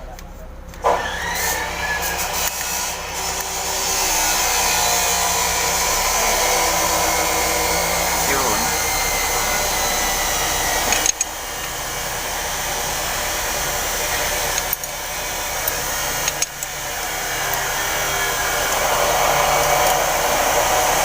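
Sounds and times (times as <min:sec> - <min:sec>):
metallic clicks of hand tools: 0:10.9 - 0:11.3, 0:14.5 - 0:14.9, 0:15.6 - 0:16.7.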